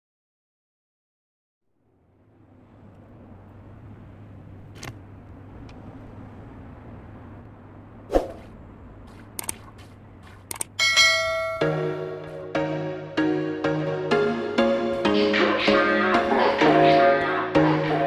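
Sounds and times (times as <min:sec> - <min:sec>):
steady low hum: 0:01.7 - 0:18.0
electronic music: 0:11.5 - 0:18.0.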